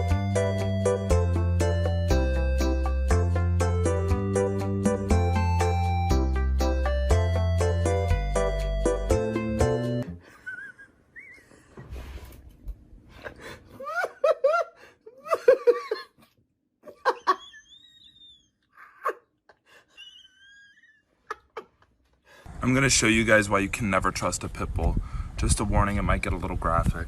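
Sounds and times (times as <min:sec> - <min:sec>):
high laughter-like vocal sounds: 0:16.9 - 0:21.8.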